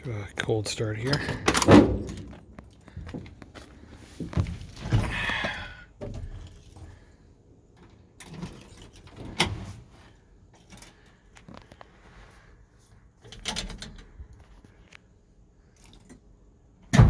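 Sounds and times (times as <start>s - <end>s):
keys jangling: 6.2s - 9.5s, 15.7s - 16.3s.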